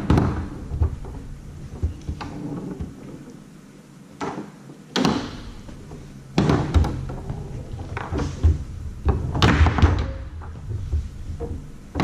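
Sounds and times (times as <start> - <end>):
foosball ball knocking: 0.0 - 3.2, 4.2 - 12.0
low rumble: 5.4 - 12.0.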